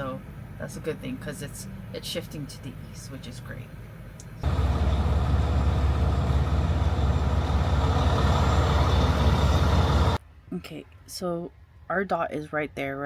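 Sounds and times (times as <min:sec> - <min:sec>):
truck diesel engine rumbling: 0:04.4 - 0:10.2.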